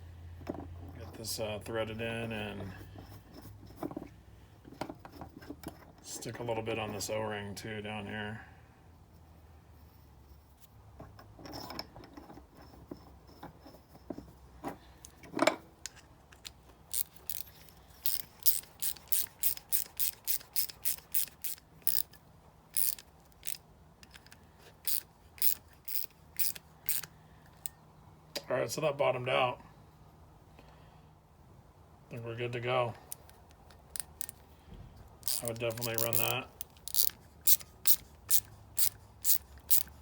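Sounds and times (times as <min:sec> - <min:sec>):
ratchet wrench clicking: 0:16.4 - 0:27.8, 0:33.1 - 0:34.4, 0:35.2 - 0:40.0.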